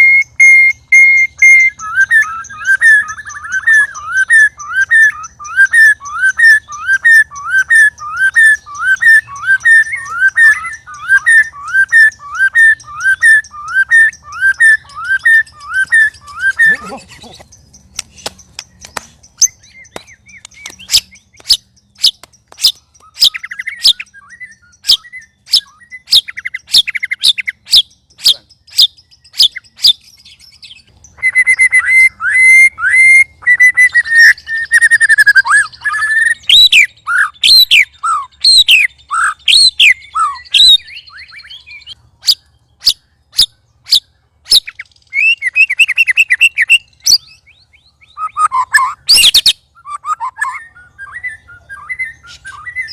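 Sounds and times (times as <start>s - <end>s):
bird song with falling whistles: 0.0s - 52.9s
bird clicking ticks: 19.9s - 23.2s.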